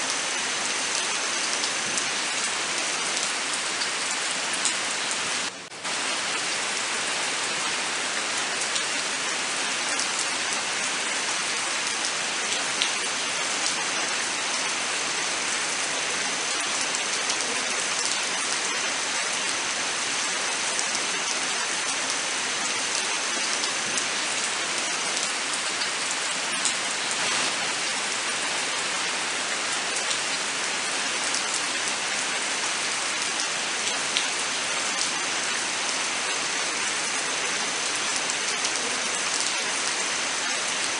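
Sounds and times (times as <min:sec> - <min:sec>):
steady rain hiss: 0:00.0 - 0:40.9
raindrops ticking on surfaces: 0:00.1 - 0:30.4.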